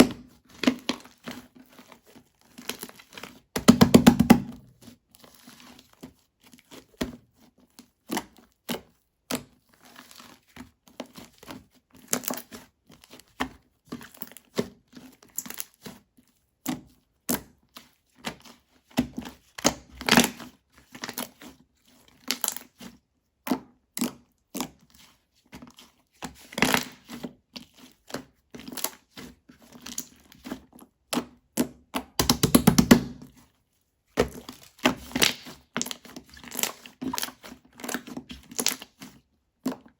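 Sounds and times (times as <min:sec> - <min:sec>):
slime squelching by hand: 0:18.2 - 0:31.6, 0:32.2 - 0:39.9.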